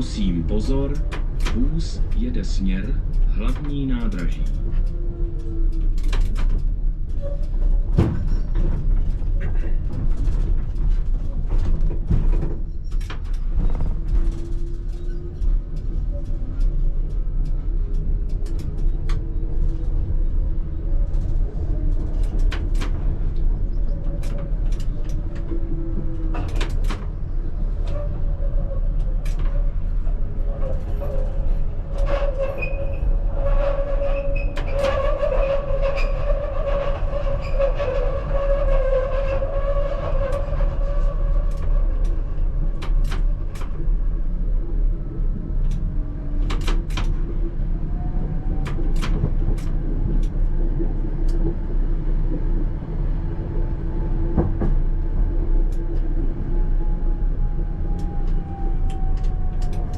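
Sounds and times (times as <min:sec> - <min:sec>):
tram rumbling on rails: 0:00.0 - 0:59.9
sharp clicks and knocks: 0:42.8 - 0:43.8, 0:45.6 - 0:47.2, 0:48.6 - 0:50.4.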